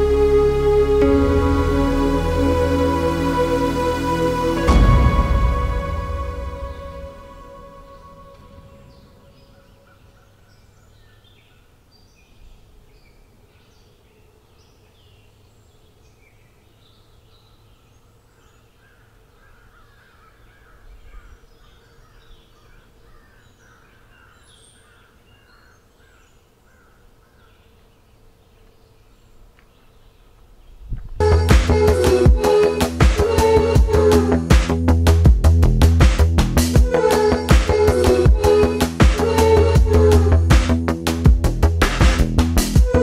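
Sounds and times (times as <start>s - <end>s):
repeated lower bird calls: 0.0s - 35.2s, 35.8s - 43.0s
high bird chirps: 6.4s - 11.6s
birds singing and calling: 7.8s - 31.4s.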